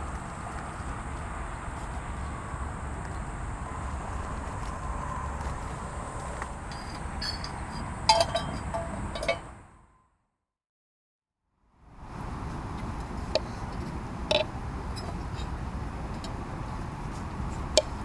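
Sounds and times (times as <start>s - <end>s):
faint insect drone: 0.0s - 9.9s
cookware or glass clinking: 7.2s - 9.5s.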